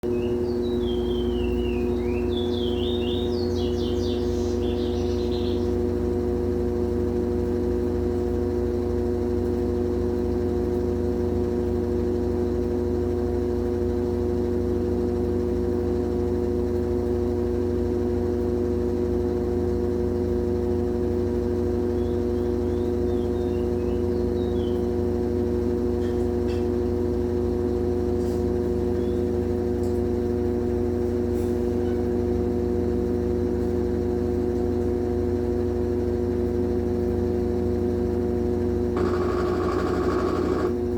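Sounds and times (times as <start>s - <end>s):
high whine: 39.0s - 40.7s
washing machine spinning: 39.0s - 40.9s.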